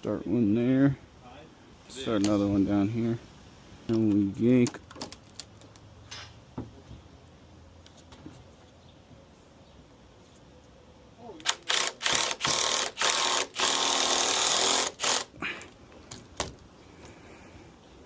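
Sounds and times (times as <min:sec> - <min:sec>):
impact driver driving a screw: 0:11.4 - 0:15.3.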